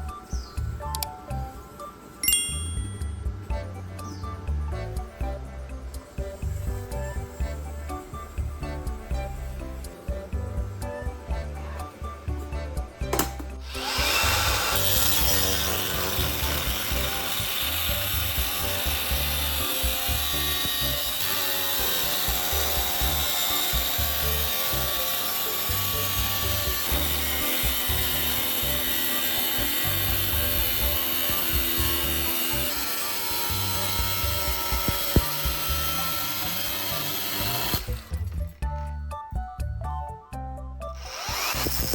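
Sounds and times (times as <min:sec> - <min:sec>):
background music: 0:00.0 - 0:41.9
power tool grinding metal: 0:13.1 - 0:38.5, 0:41.0 - 0:41.9.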